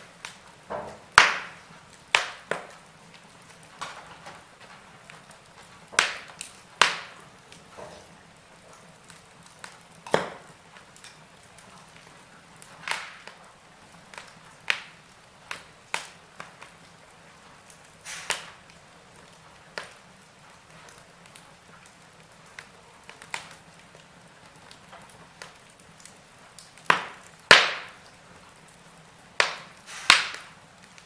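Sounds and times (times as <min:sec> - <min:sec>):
wood fire crackling: 0:00.0 - 0:31.0
faint hiss: 0:12.1 - 0:21.6, 0:25.7 - 0:31.0.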